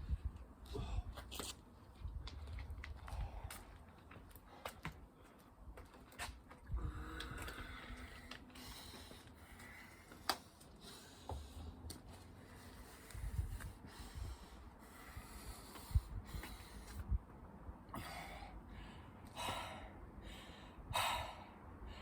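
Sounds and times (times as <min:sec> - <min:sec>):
man breathing hard: 0:06.7 - 0:17.2, 0:17.9 - 0:22.0.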